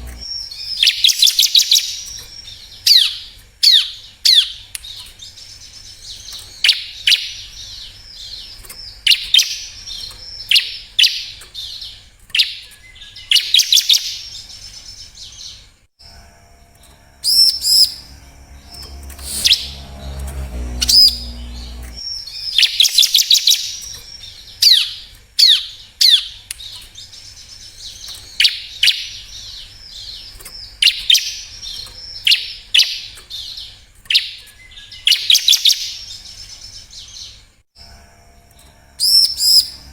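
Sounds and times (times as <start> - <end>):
low steady-pitched sound: 16.7 - 22.0
bird singing high chirping phrases: 16.7 - 37.4, 38.6 - 39.9.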